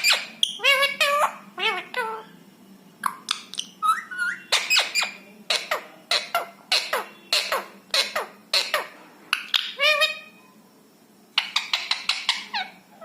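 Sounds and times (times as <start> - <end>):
parrot shrill calls: 0.0 - 2.3, 3.0 - 10.4.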